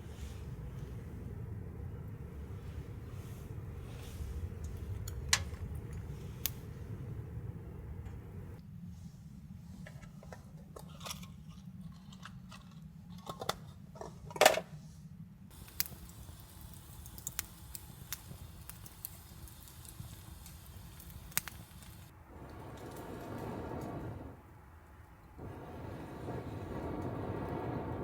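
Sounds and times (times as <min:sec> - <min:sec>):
low steady hum: 0:00.0 - 0:09.3.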